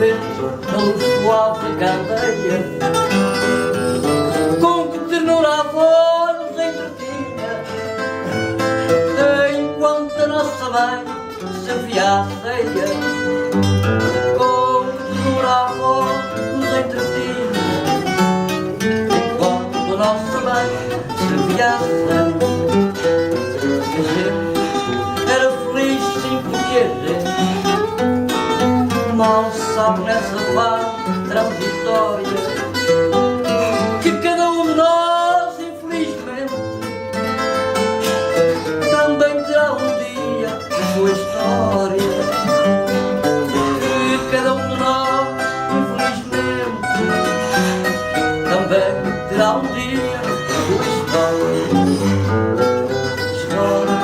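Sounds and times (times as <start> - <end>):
acoustic guitar chords: 0.0 - 54.0
guitar melody: 0.0 - 54.0.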